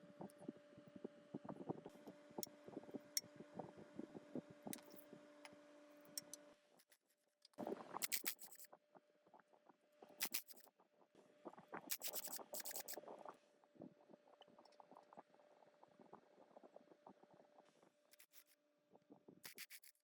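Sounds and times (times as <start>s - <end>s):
faint steady hum: 0.0s - 6.8s.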